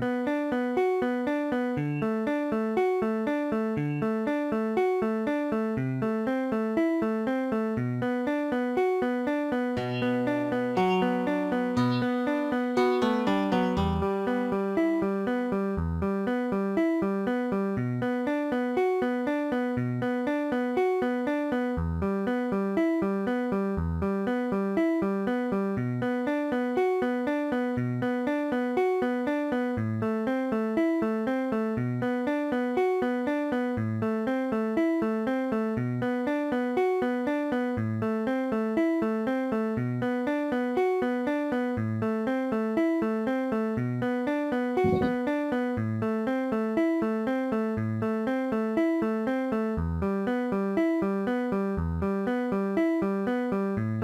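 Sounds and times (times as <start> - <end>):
synthesized guitar notes: 9.8 - 15.1, 44.8 - 45.4
low bass note: 44.8 - 45.2.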